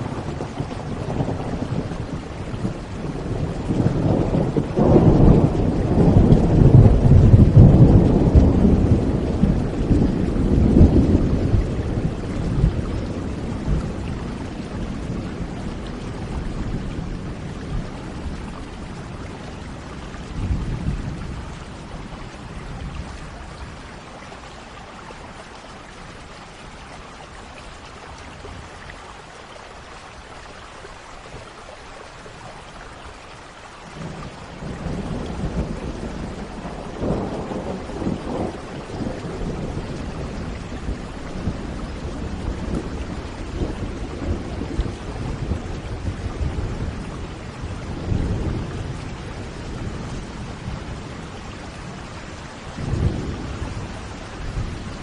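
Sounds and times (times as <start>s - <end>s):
thunder rumbling: 0.0s - 24.1s, 34.0s - 55.0s
rain falling: 0.0s - 55.0s.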